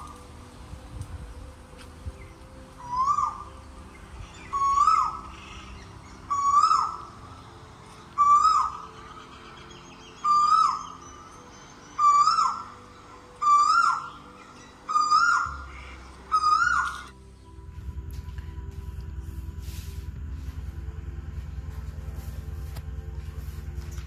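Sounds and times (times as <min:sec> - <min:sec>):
bird calling: 0:02.2 - 0:17.2.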